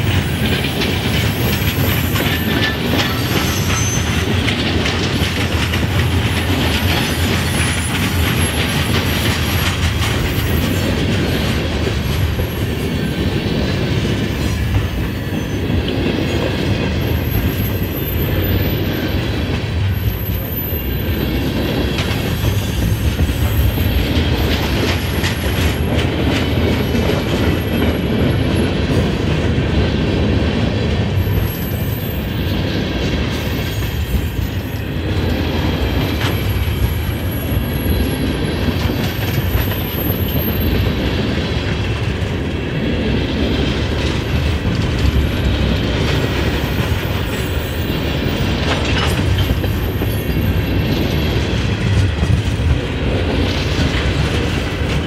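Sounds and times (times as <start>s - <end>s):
clacking over rail joints: 0.0s - 31.7s, 32.9s - 55.0s
train wheels rumbling on rail: 0.0s - 55.0s
high-pitched wheel squeals: 2.0s - 4.3s.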